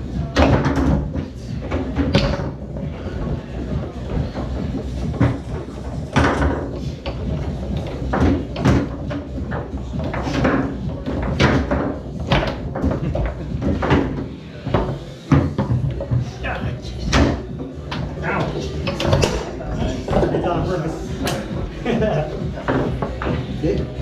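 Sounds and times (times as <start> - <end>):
foosball ball knocking: 0.3 - 2.6, 4.1 - 16.3, 17.0 - 21.8
foosball rods clacking: 0.3 - 24.0.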